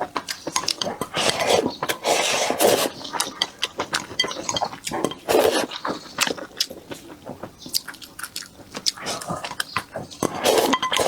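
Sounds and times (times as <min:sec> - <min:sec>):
wet chewing: 0:00.0 - 0:11.0
utensils clinking: 0:00.2 - 0:06.0, 0:10.2 - 0:11.0
noodles slurped: 0:00.3 - 0:04.1, 0:04.9 - 0:11.0.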